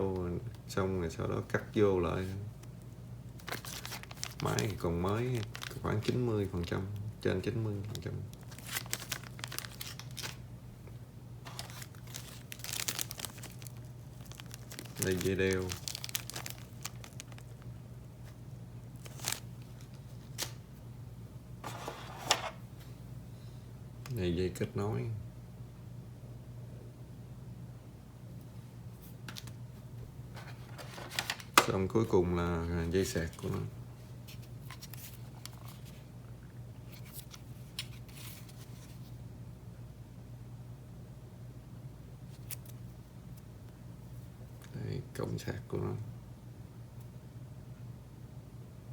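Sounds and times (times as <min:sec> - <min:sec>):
low steady hum: 0:00.0 - 0:48.9
plastic packaging rustles and clicks: 0:03.4 - 0:07.0, 0:07.8 - 0:10.4, 0:11.4 - 0:17.6, 0:19.0 - 0:20.6, 0:29.2 - 0:29.6, 0:30.4 - 0:31.8, 0:34.3 - 0:36.0, 0:36.9 - 0:39.1.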